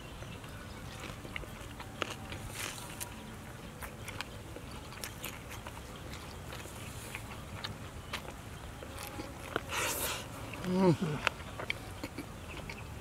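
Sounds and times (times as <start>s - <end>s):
person chewing meat: 0.0s - 13.0s.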